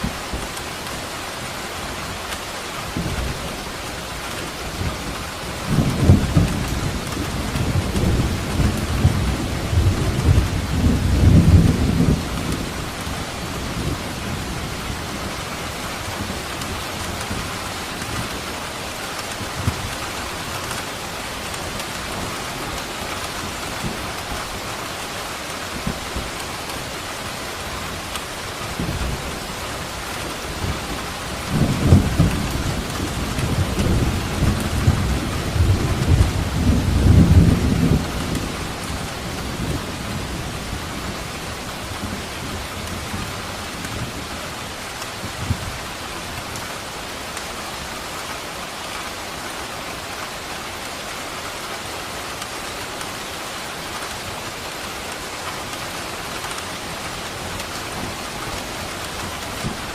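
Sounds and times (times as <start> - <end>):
heavy rain falling: 0.0 - 59.9
thunder rumbling: 4.7 - 20.7, 28.5 - 45.7.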